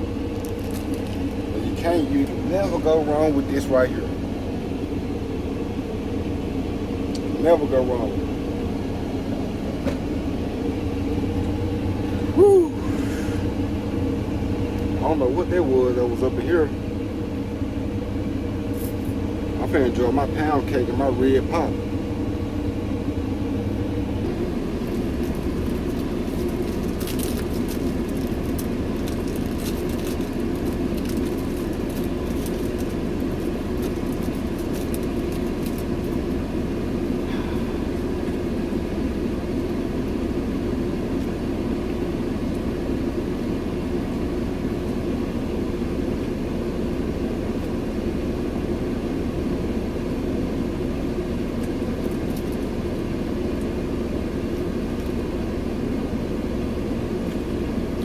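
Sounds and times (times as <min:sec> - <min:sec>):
cab air: 0:00.0 - 0:41.5
truck engine drone from cab: 0:00.0 - 0:58.0.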